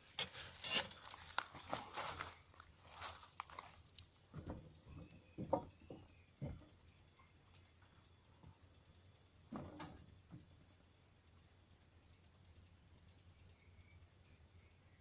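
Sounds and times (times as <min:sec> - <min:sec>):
campfire crackling: 0:00.0 - 0:05.4, 0:06.1 - 0:14.0
fire snaps and pops: 0:02.6 - 0:05.4.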